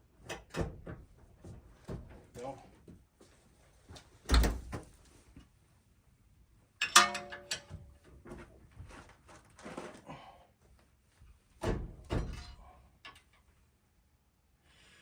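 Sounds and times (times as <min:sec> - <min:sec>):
metal tools knocking: 0:06.8 - 0:07.8
metallic clank: 0:06.8 - 0:07.8.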